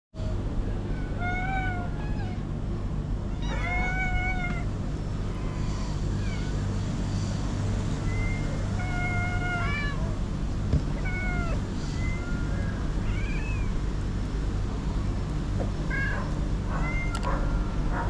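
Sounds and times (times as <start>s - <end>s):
steady low rumble: 0.2s - 18.0s
cats meowing: 0.7s - 2.5s, 3.2s - 6.9s, 7.9s - 13.9s, 15.8s - 17.3s.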